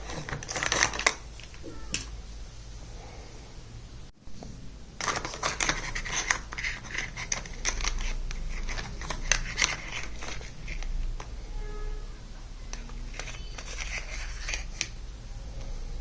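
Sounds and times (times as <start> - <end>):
plastic toy pieces clicking: 5.0 - 11.0.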